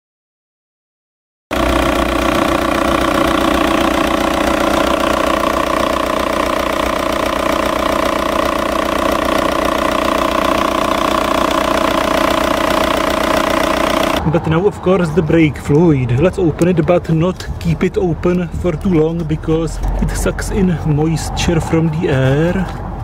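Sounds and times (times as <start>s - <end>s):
timing belt whining: 1.5s - 15.8s
car engine idling: 1.5s - 23.0s.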